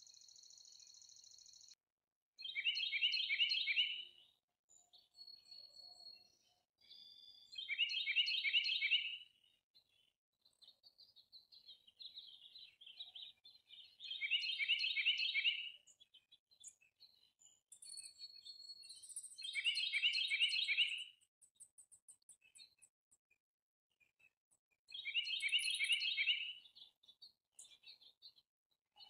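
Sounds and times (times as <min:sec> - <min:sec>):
songbird chirping: 0:00.0 - 0:01.8, 0:02.4 - 0:22.9, 0:24.9 - 0:29.0.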